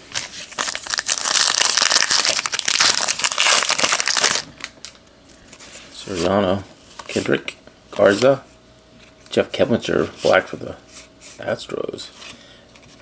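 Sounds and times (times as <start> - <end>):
card pack wrapper crinkling: 0.0 - 5.0.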